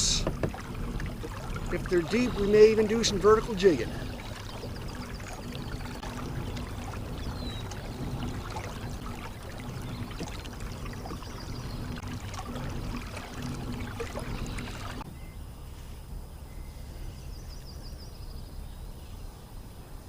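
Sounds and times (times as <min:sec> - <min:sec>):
water trickling along kayak hull: 0:00.0 - 0:15.4
faint low hum: 0:00.0 - 0:20.0.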